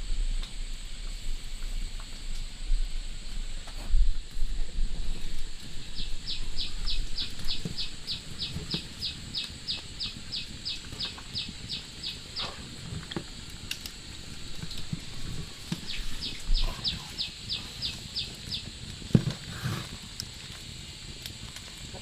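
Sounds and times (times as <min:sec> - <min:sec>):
bird chirping: 0:05.8 - 0:12.6, 0:15.7 - 0:18.7.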